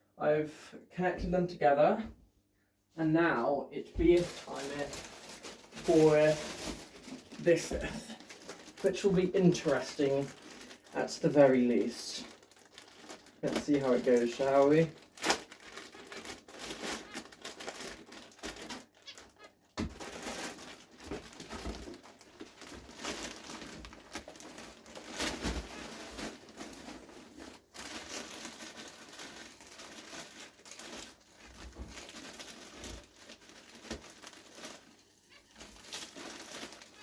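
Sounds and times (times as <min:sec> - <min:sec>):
wood shavings rustling: 0:04.0 - 0:15.0.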